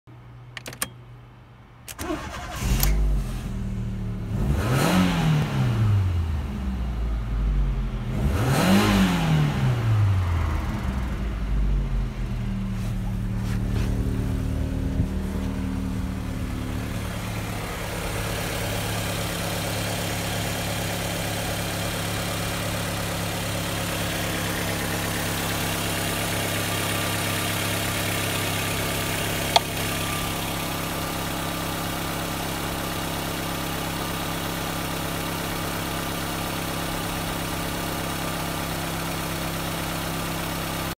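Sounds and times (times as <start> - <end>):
sharp click: 0.5 - 1.0
car engine starting and revving: 1.9 - 33.5
car engine idling: 9.8 - 40.9.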